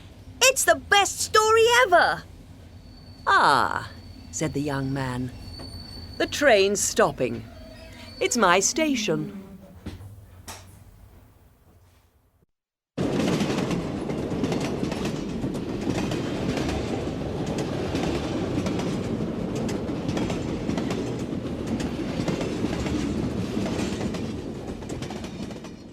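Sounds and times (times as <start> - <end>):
train wheels clacking on rails: 13.0 - 25.9.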